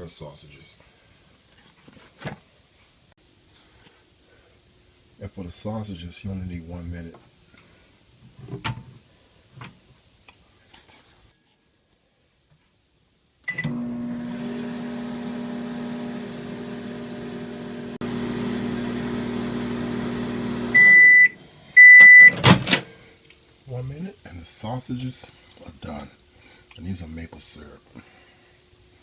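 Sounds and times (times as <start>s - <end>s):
microwave oven humming: 13.5s - 21.4s
microwave beeping: 13.5s - 22.7s.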